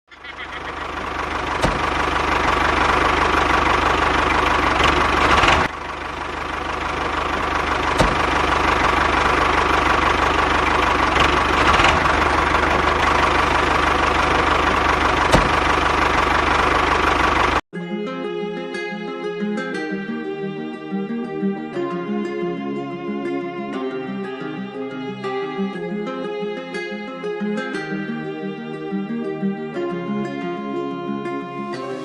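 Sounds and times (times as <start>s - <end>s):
engine chugging: 0.1s - 17.6s.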